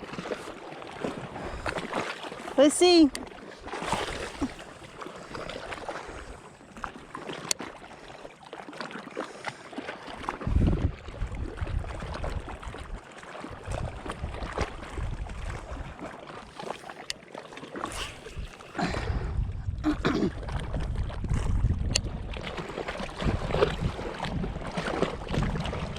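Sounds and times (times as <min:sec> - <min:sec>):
water lapping and splashing: 0:00.0 - 0:25.9
wind gusting over microphone: 0:10.4 - 0:12.8, 0:13.6 - 0:15.9, 0:17.9 - 0:25.9.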